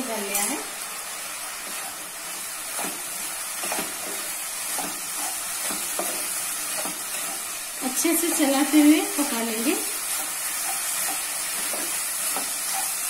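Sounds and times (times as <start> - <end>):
batter sizzling in a pan: 0.0 - 13.0
spatula scraping a pan: 2.7 - 13.0.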